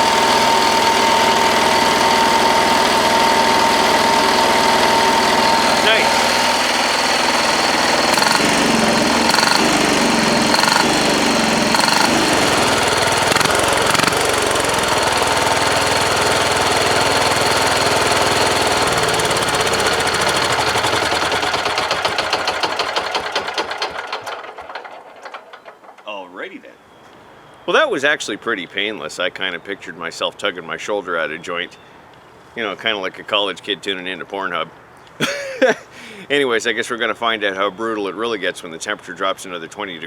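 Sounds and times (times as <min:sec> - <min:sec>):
diesel tractor engine running: 0:00.0 - 0:26.0.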